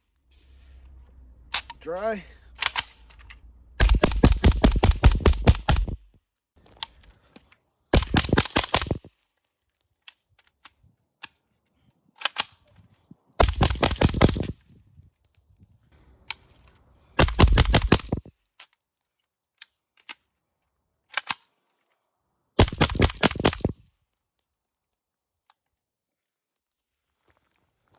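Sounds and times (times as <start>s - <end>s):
suppressed pistol shots: 3.8s - 6.0s, 17.2s - 18.2s.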